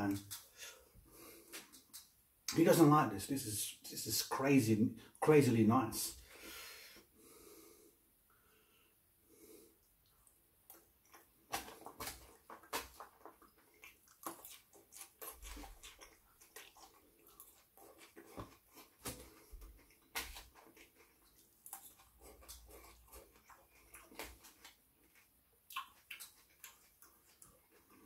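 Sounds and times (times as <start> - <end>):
man chewing food: 0.0 - 2.2, 6.2 - 28.0
wet mouth smacks and clicks: 1.5 - 2.2, 25.6 - 27.5.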